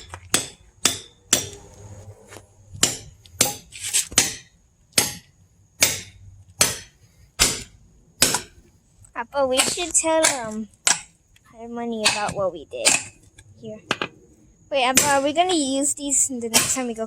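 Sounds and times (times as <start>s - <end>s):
hammer striking splitting wedge: 0.0s - 1.7s, 2.8s - 8.6s, 9.6s - 11.1s.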